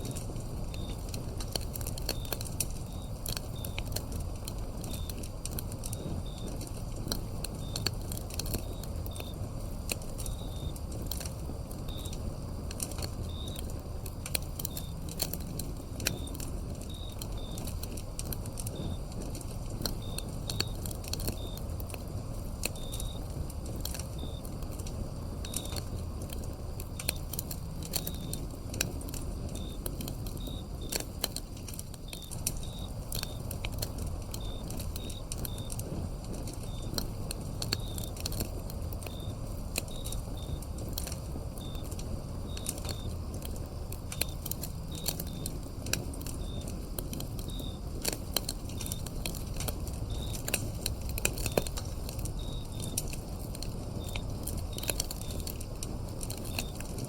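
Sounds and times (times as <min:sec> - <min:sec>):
crickets chirping: 0:00.0 - 0:57.0
wood fire crackling: 0:00.0 - 0:57.0.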